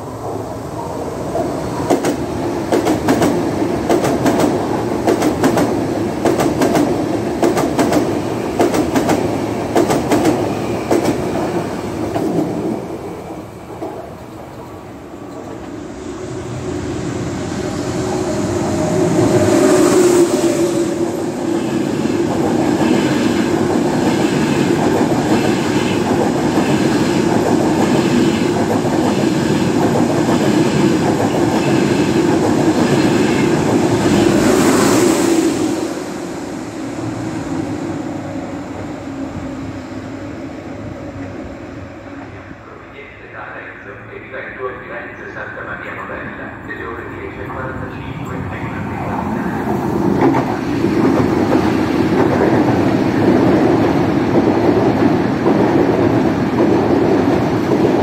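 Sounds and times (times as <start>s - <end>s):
train rumbling past: 0.0s - 58.0s
train wheels clicking over rail joints: 1.9s - 12.6s.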